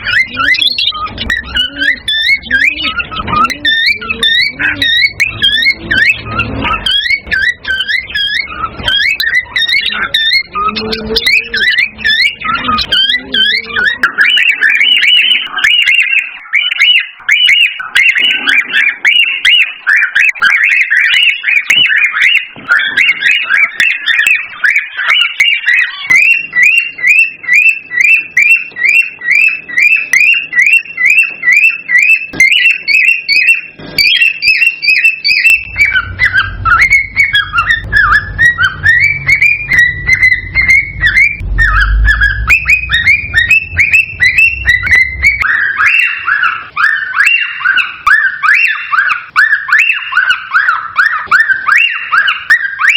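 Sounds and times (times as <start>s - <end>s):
cockatiels whistling and chirping: 0.0s - 52.9s
low rumble: 35.6s - 45.4s.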